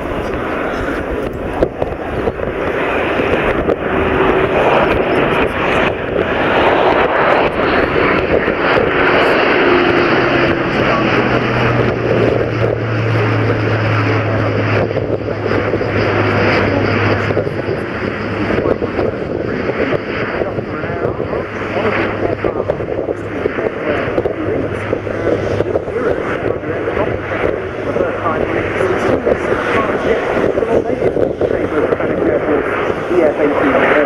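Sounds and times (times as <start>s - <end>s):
propeller aircraft flying past: 0.0s - 34.0s
steady low hum: 0.0s - 34.0s.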